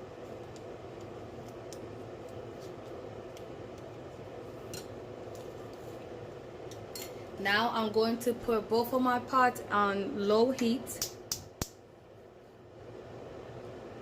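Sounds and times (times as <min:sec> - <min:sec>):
steady low hum: 0:00.0 - 0:14.0
utensils clicking against pots: 0:06.6 - 0:07.2.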